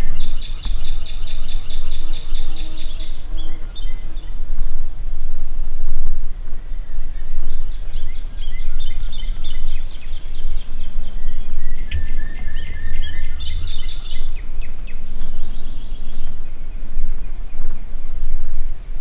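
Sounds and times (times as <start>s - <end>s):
songbirds chirping and trilling: 0.0s - 19.0s
wind rumbling on microphone: 0.0s - 19.0s.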